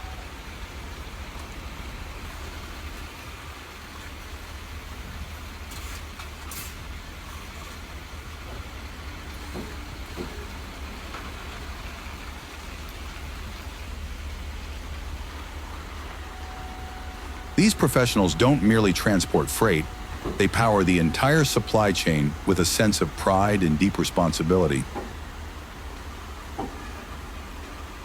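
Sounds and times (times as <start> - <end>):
heavy truck engine and road noise: 0.0 - 28.0.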